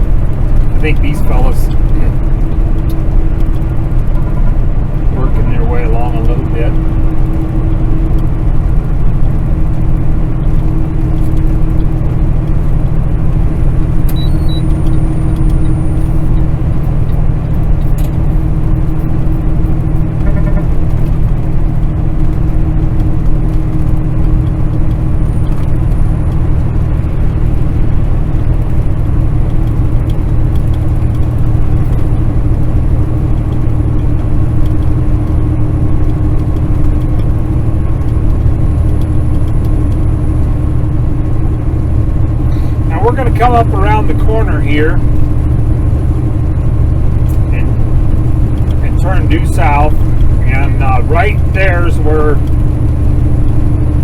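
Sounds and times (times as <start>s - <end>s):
road noise: 0.0s - 54.0s
truck diesel engine drone: 0.0s - 54.0s.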